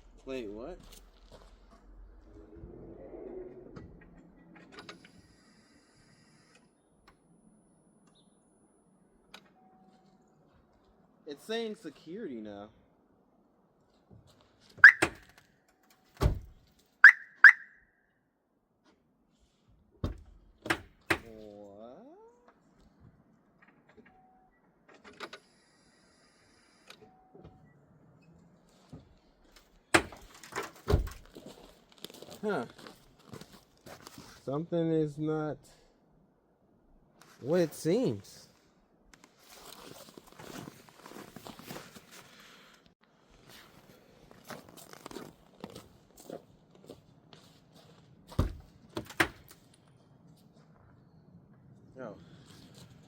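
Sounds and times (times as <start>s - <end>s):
short electronic beeps: 14.8s - 15.2s, 17.0s - 17.8s.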